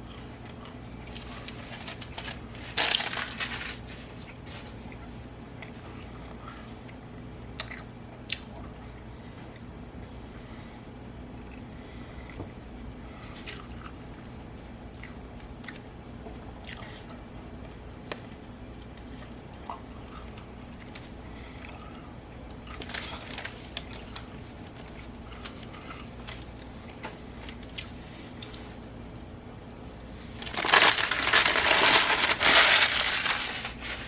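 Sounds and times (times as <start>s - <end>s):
steady low hum: 0.0s - 34.0s
person chewing: 4.2s - 9.7s, 14.9s - 15.9s, 18.8s - 27.0s, 27.6s - 28.6s.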